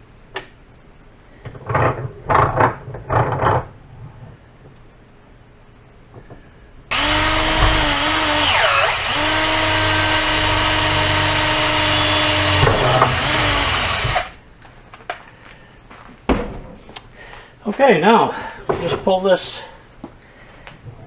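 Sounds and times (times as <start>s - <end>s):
electric drill boring through hose: 6.9s - 14.4s.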